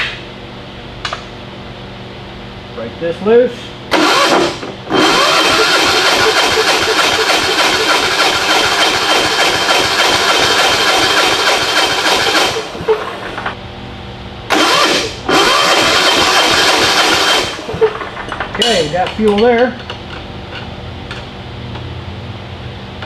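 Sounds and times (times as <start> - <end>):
electric starter cranking engine: 3.9 - 13.6, 14.5 - 18.2.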